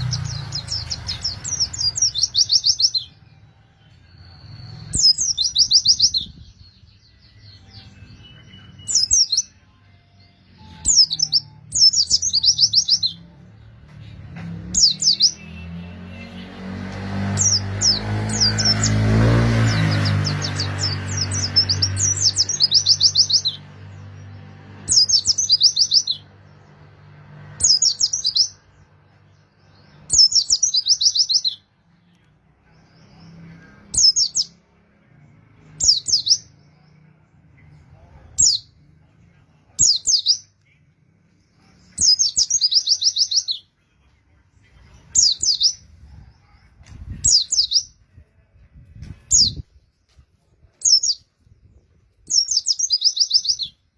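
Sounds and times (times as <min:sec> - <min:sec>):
bird singing trilled phrases: 0:00.0 - 0:13.4, 0:19.6 - 0:24.1, 0:24.9 - 0:26.3, 0:27.6 - 0:31.7, 0:35.8 - 0:37.0, 0:39.7 - 0:40.7, 0:41.8 - 0:43.8, 0:45.0 - 0:46.0, 0:46.6 - 0:48.0, 0:50.8 - 0:53.9.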